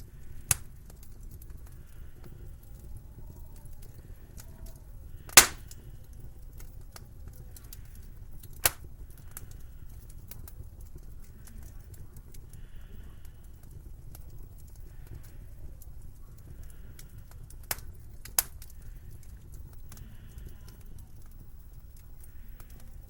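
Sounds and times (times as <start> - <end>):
wood fire crackling: 0.0 - 23.0
sharp loud pops: 5.4 - 5.7.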